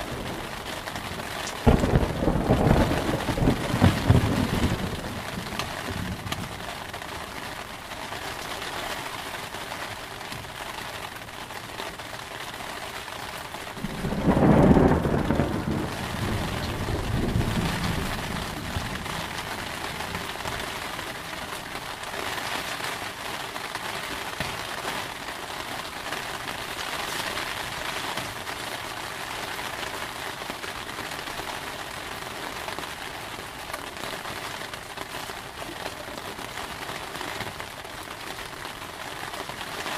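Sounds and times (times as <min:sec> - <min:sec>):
thunder rumbling: 0:00.0 - 0:07.4, 0:13.7 - 0:22.1
heavy rain: 0:00.0 - 0:39.9.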